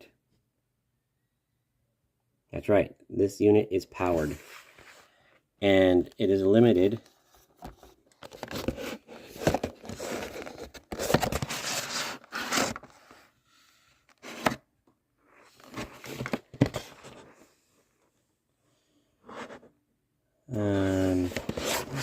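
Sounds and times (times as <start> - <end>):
cardboard and plastic rustling: 6.9 - 13.3, 15.4 - 17.4, 20.9 - 22.0.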